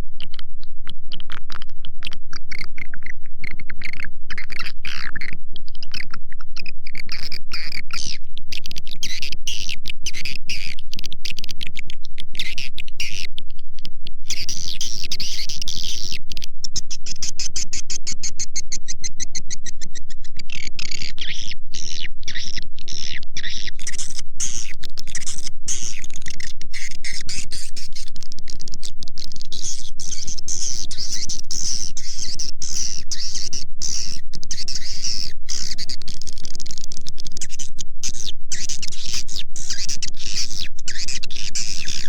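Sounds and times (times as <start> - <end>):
steady low hum: 0.0 - 42.0
swiftlet twittering chirps: 16.7 - 28.1, 29.2 - 42.0.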